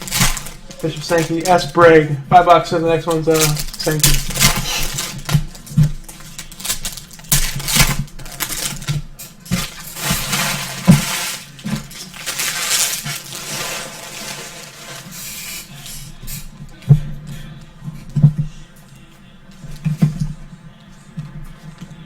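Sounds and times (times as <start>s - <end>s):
trading cards clicking and rustling: 0.0s - 16.1s.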